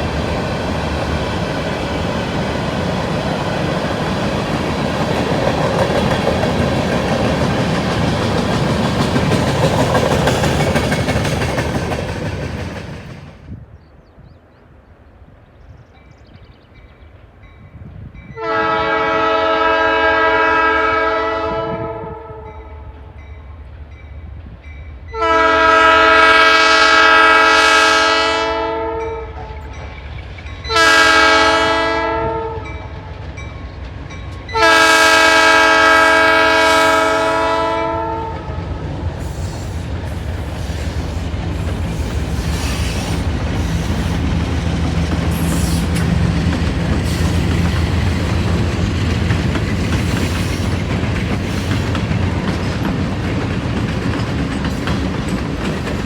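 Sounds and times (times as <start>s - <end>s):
wheels clicking over rail joints: 3.7s - 13.2s, 43.6s - 56.0s
locomotive air horn blasts: 18.4s - 22.8s, 25.1s - 29.6s, 30.7s - 32.8s, 34.5s - 38.6s
locomotive engine rumbling: 32.6s - 56.0s.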